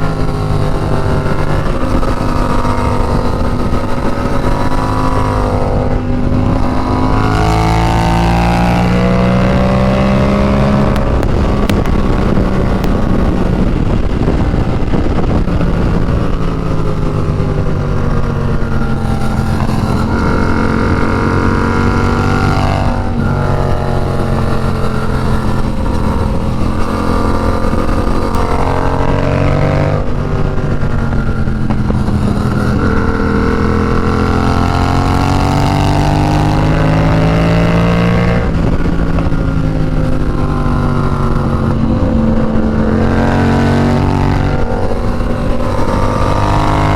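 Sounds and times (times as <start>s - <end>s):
motorcycle engine revving: 0.0s - 46.9s
wind rushing: 0.0s - 46.9s.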